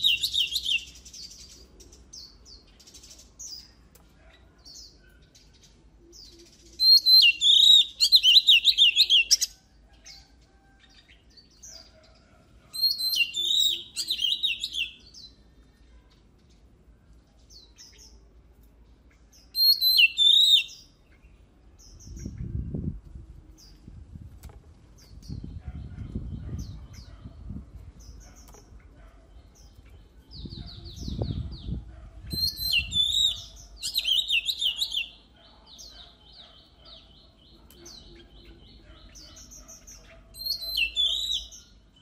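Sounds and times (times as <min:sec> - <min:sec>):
bird singing warbled phrases: 0:00.0 - 0:24.2, 0:24.9 - 0:42.0
soft bird chirps: 0:24.9 - 0:42.0.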